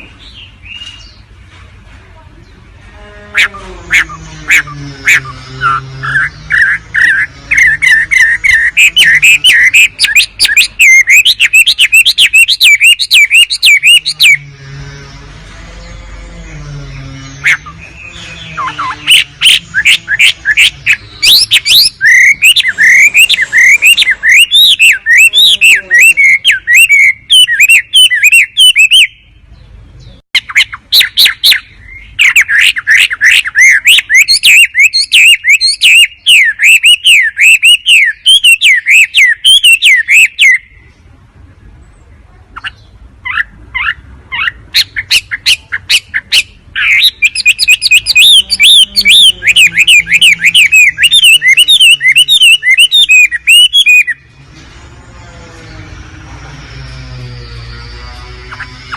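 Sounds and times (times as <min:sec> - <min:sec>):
bird song with clicks and warbles: 0:00.0 - 0:01.7, 0:02.4 - 0:58.9.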